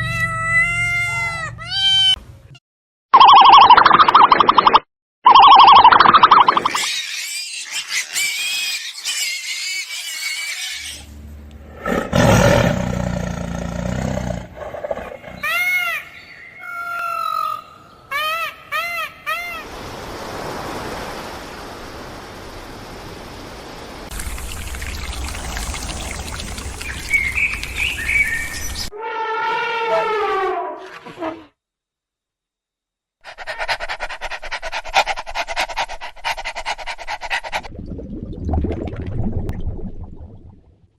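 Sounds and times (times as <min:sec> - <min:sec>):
falling drawn-out animal call: 0:06.6 - 0:11.2, 0:15.0 - 0:19.7, 0:28.1 - 0:31.5.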